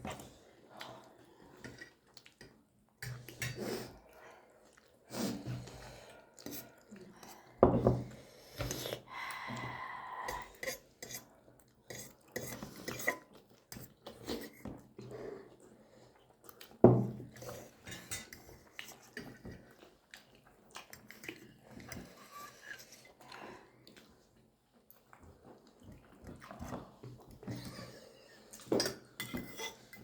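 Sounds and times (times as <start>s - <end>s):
cutlery clinking on plates: 28.6s - 30.0s.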